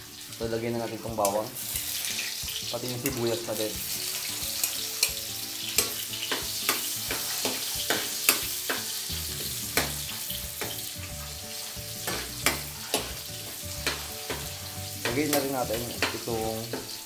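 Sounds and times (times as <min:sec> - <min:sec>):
garlic and onion sizzling in oil: 0:00.0 - 0:17.0
metal spoon scraping a wok: 0:01.6 - 0:03.2, 0:04.0 - 0:15.1.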